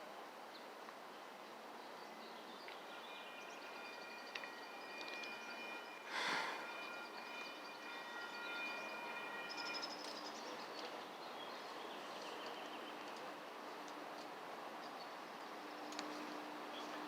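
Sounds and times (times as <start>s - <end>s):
high ringing tones: 2.8s - 10.7s.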